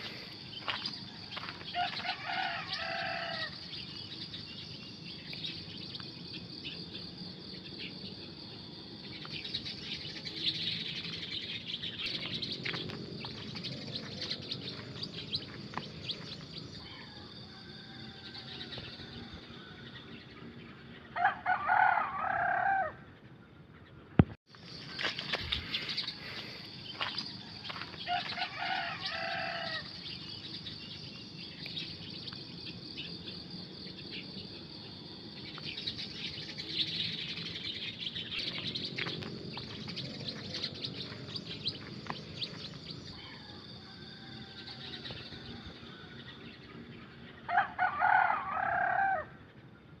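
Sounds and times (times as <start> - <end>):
small birds chirping: 0.0 - 21.2, 23.1 - 48.3
rooster crowing: 1.1 - 3.6, 16.8 - 20.0, 21.2 - 23.0, 27.4 - 30.0, 43.1 - 46.5, 47.5 - 49.4.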